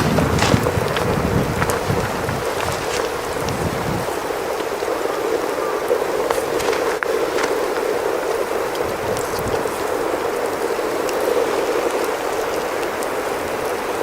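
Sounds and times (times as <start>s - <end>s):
precipitation pattering: 0.0s - 13.1s.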